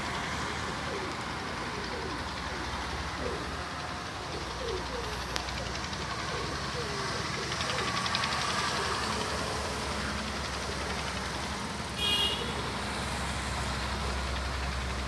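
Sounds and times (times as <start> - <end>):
motor traffic rumble: 0.0 - 15.0.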